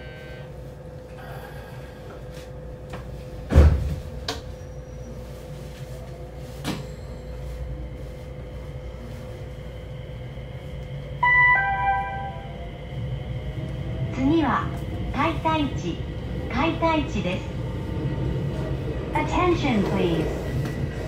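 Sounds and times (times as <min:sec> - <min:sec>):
train rumble inside carriage: 0:00.0 - 0:21.0
two-note tone: 0:11.2 - 0:12.7.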